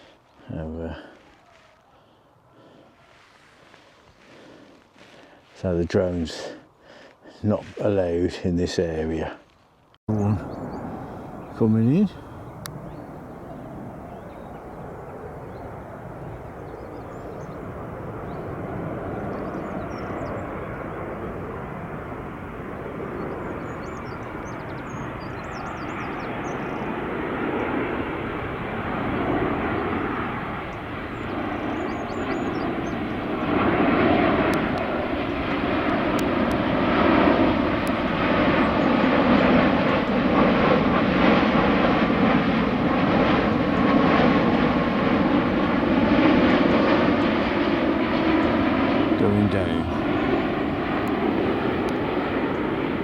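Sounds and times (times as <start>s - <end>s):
aeroplane engine roar: 2.0s - 9.2s, 10.1s - 53.0s
faint birds chirping: 10.1s - 21.3s, 22.8s - 27.8s, 30.6s - 33.6s, 48.2s - 52.9s.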